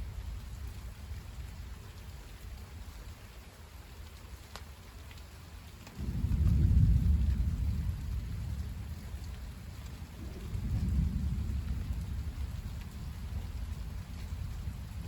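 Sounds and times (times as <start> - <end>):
rain falling: 0.0 - 15.0
thunder rumble: 5.9 - 15.0.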